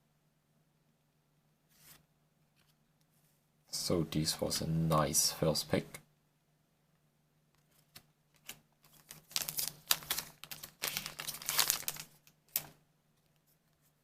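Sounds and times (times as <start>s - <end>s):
cards clicking and rustling: 7.6s - 12.8s.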